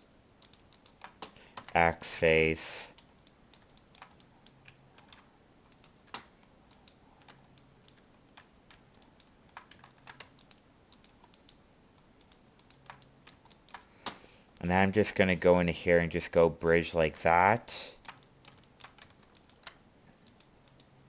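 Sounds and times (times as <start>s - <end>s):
keyboard keys clicking: 3.6s - 11.6s, 18.0s - 20.9s.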